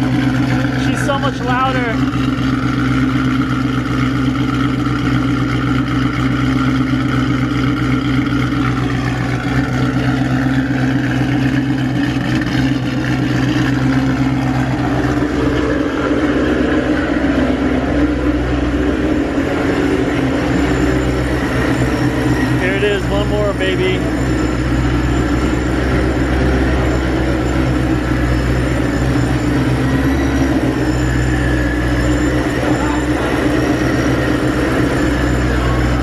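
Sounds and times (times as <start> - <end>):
car engine idling loudly: 0.0 - 36.0.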